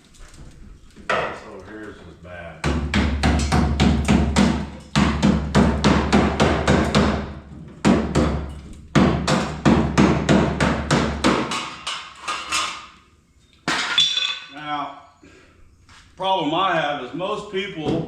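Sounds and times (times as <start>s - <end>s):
hammer blows on sheet metal: 2.6s - 12.1s.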